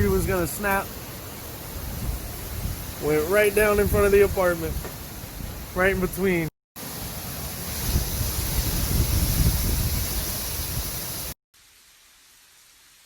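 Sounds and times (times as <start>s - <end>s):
wind gusting on microphone: 0.0s - 6.5s, 7.2s - 11.3s
faint steady hiss: 0.0s - 13.0s.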